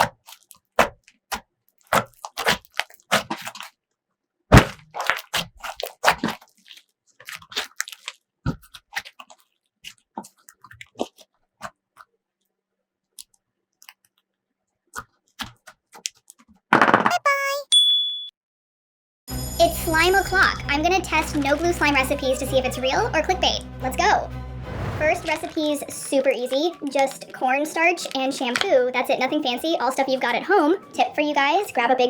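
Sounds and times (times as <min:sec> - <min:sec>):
slime squished by hand: 0:00.0 - 0:03.8, 0:04.5 - 0:11.8.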